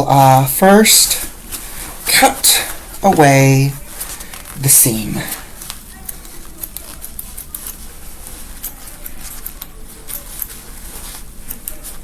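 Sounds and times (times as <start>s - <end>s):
fabric rustling: 0.0s - 12.0s
scissors snipping: 5.6s - 10.8s, 11.4s - 12.0s.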